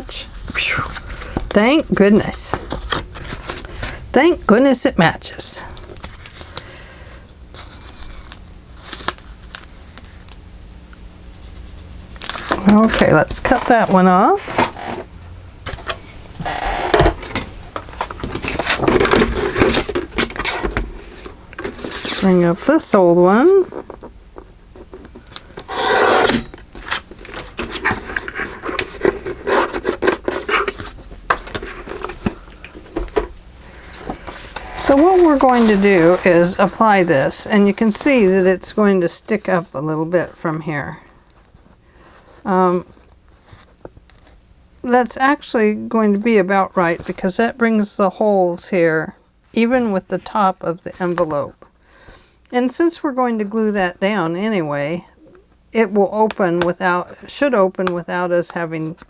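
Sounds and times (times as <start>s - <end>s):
paper rustling and shuffling: 0.4s - 4.8s, 5.5s - 6.7s, 7.5s - 10.4s, 11.4s - 40.4s, 41.1s - 44.4s, 46.8s - 47.3s, 49.6s - 51.7s
paper rustling: 12.2s - 15.1s, 24.8s - 38.6s.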